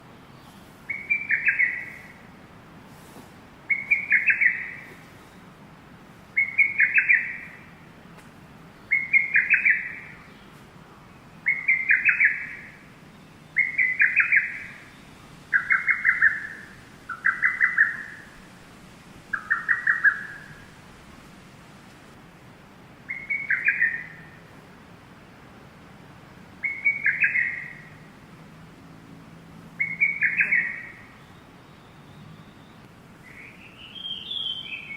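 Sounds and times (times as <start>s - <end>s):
bird calling: 0.4s - 2.3s, 3.7s - 5.4s, 6.4s - 7.8s, 8.8s - 10.6s, 11.4s - 18.4s, 19.3s - 20.7s, 23.1s - 24.4s, 26.6s - 28.2s, 29.8s - 34.9s.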